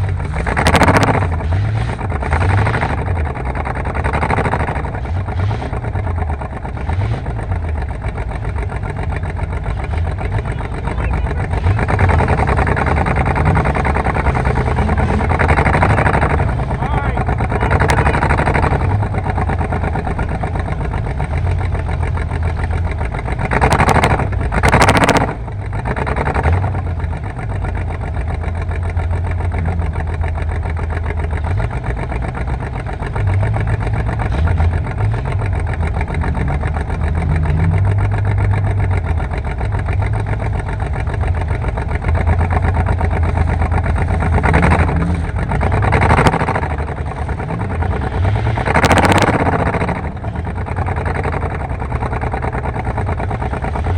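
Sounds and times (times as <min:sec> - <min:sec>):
car engine idling: 0:00.0 - 0:53.9.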